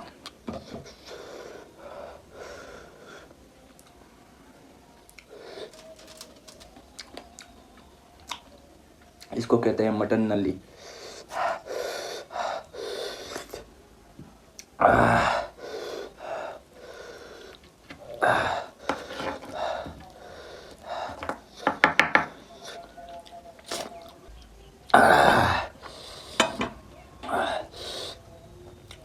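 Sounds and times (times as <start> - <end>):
breaths: 0.5 - 3.4, 10.7 - 13.6, 15.1 - 21.7, 25.4 - 28.3
chewing: 5.1 - 9.4, 22.6 - 25.0.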